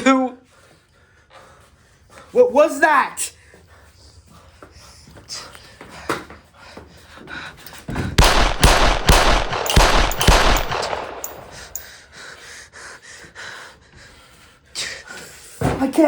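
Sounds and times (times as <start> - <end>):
rapid gunshots: 8.2 - 11.8.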